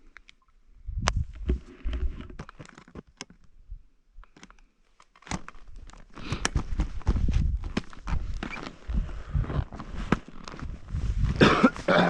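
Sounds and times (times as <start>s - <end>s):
uneven crunching with low rumble: 0.8s - 2.6s, 5.3s - 12.0s
handling clicks and rustles: 1.1s - 3.6s, 4.2s - 12.0s.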